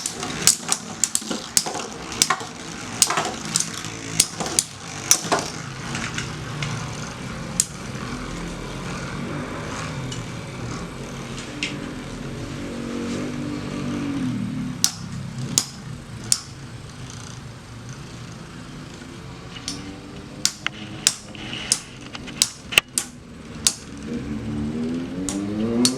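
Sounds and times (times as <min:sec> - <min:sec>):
spinning tops clacking together: 0:00.0 - 0:08.8, 0:14.8 - 0:24.3
spinning tops whirring: 0:00.0 - 0:25.9.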